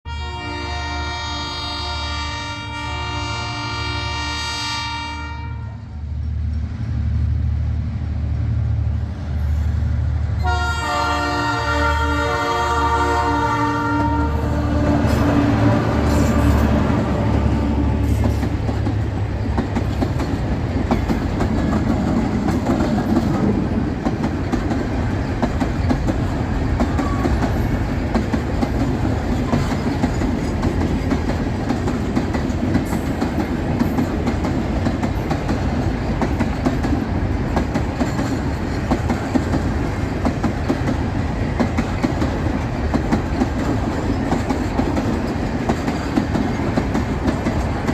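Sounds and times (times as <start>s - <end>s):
train rumbling past: 0.1s - 47.9s
wheels clacking over rail joints: 14.0s - 47.9s.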